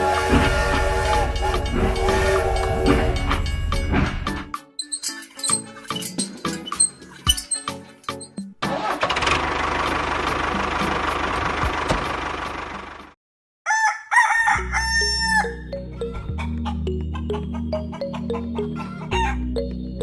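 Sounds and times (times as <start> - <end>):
music with low bass: 0.1 - 4.5
rooster crowing: 13.7 - 15.6.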